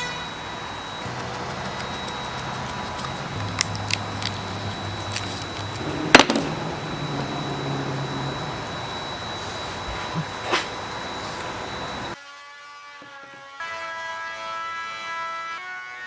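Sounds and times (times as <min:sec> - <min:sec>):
low steady hum: 0:00.0 - 0:12.2.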